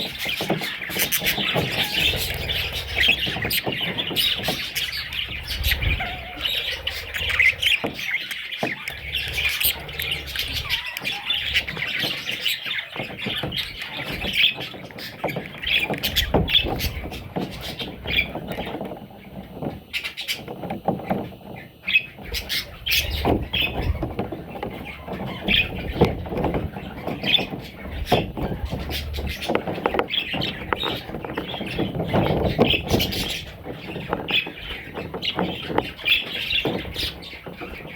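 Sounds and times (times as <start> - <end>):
budgerigars chirping: 0.0 - 18.9, 21.1 - 37.9.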